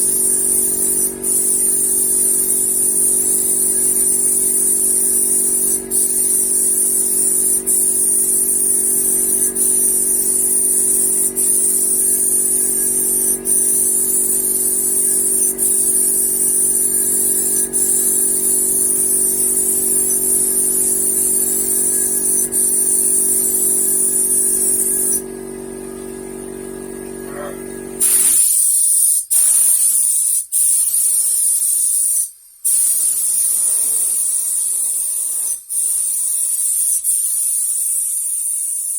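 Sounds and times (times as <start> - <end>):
paint sprayer hissing: 0.0 - 25.3, 27.9 - 38.7
motor hum: 0.0 - 28.3.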